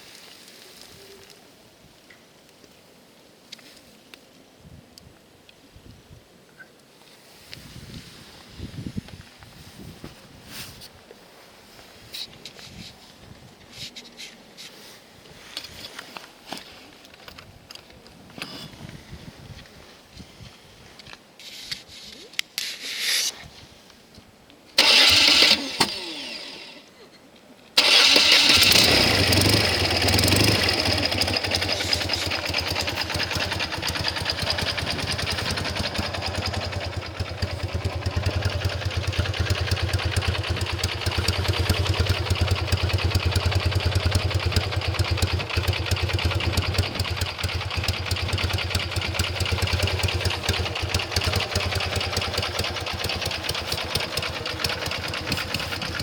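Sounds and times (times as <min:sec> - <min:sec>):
motorcycle engine idling: 0:27.8 - 0:56.0.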